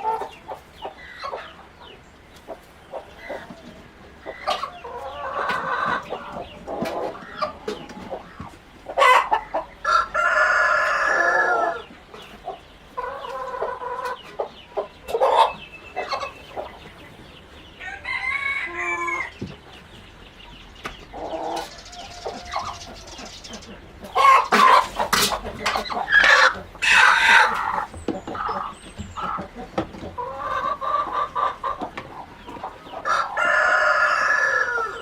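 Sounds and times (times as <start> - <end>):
chickens clucking: 0.0 - 35.0
rooster crowing: 17.8 - 19.4, 33.0 - 35.0.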